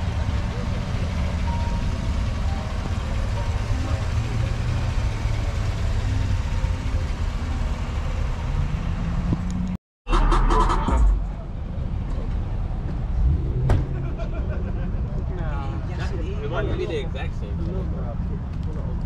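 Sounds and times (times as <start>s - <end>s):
vehicle engine idling: 0.0s - 9.4s
outdoor background noise: 0.0s - 19.0s.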